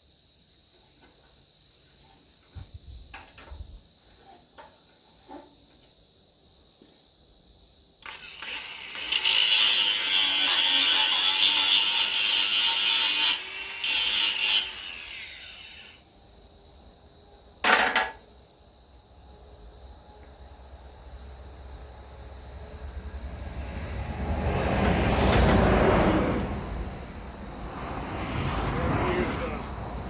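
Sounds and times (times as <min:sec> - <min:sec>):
angle grinder grinding metal: 0:08.0 - 0:16.0.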